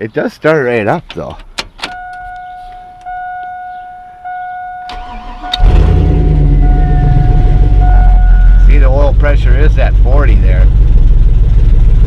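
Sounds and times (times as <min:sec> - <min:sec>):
electronic warning chime: 0:02.0 - 0:08.8
pickup truck engine starting and idling: 0:03.1 - 0:12.0.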